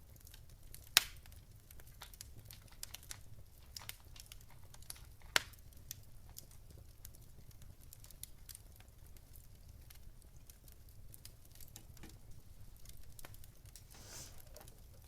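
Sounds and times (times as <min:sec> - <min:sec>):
fire crackling and popping: 0:00.0 - 0:15.0
low rumble of fire: 0:00.0 - 0:15.0
brief rustle: 0:13.8 - 0:14.7.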